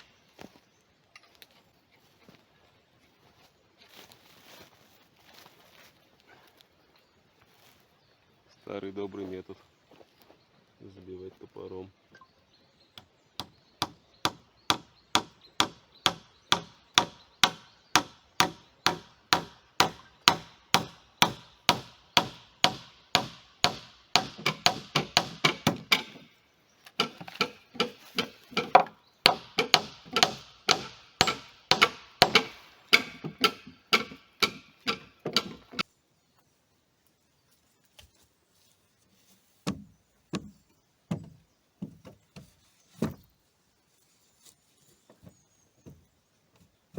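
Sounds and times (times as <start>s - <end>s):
axe hammering nails into wood: 13.0s - 26.3s, 26.9s - 35.8s.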